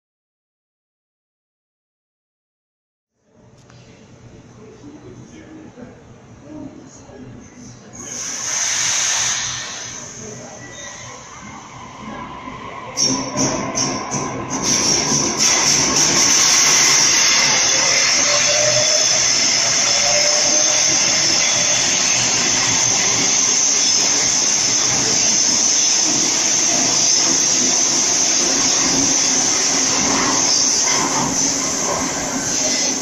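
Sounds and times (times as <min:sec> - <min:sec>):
electric train passing: 0:11.1 - 0:33.0.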